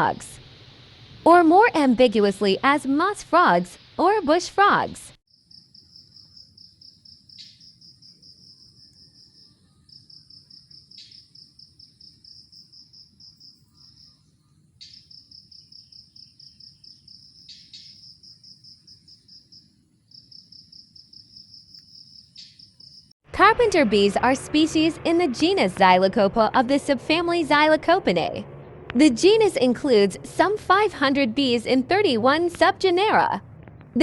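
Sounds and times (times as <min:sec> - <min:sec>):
cricket trilling: 0:05.3 - 0:23.1
sharp chirps: 0:14.8 - 0:23.1.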